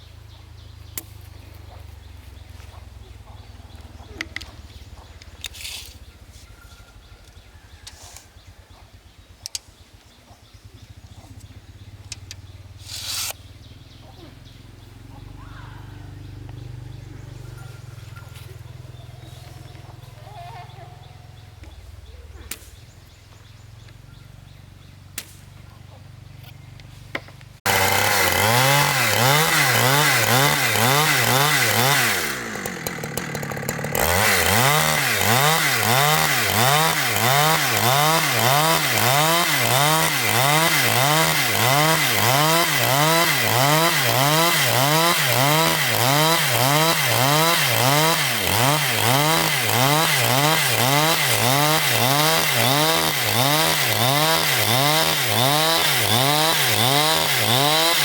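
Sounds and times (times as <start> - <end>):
powered saw cutting: 12.8 - 13.4, 27.6 - 58.0.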